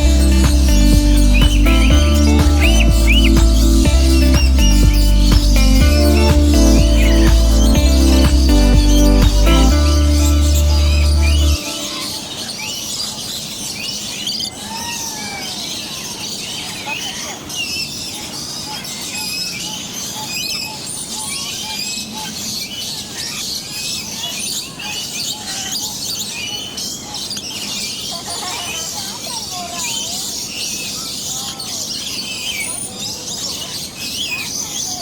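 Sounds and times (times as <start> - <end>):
snatch of music: 0.0 - 11.5
many birds chirping and whistling: 0.0 - 35.0.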